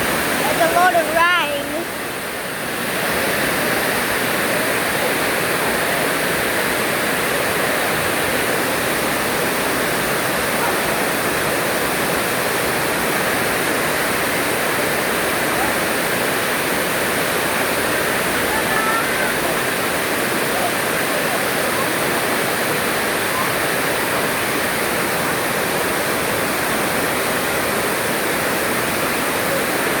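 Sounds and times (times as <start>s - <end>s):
heavy rain falling: 0.0s - 30.0s.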